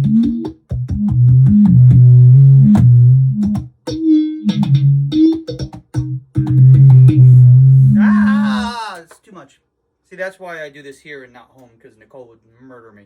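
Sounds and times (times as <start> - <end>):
low synth-like bass tones: 0.0 - 8.7.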